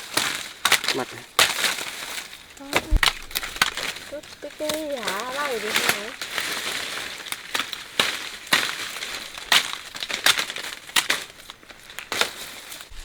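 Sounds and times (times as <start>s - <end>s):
dry vegetation crunching and rustling: 0.0s - 13.0s.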